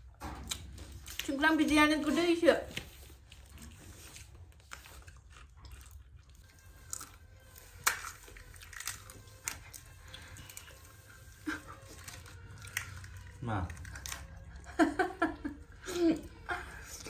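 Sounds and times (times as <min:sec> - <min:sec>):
biting and chewing food: 0:00.0 - 0:01.4, 0:02.8 - 0:14.8.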